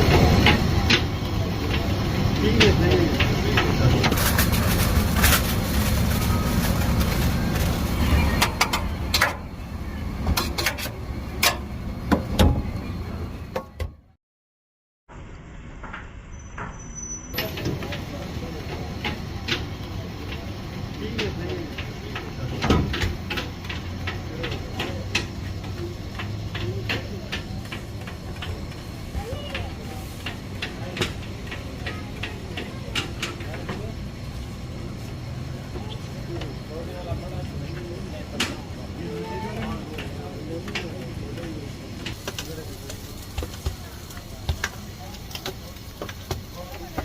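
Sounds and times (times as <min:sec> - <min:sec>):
faint voices: 0:00.0 - 0:10.6, 0:17.4 - 0:47.0
traffic rumble: 0:00.0 - 0:14.2, 0:15.1 - 0:47.0
utensils clicking and knocking: 0:21.1 - 0:33.9.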